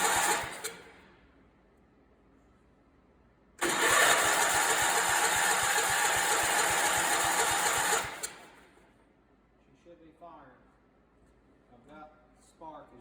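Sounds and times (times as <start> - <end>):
engine cranking by starter: 0.0 - 1.0, 3.6 - 8.8.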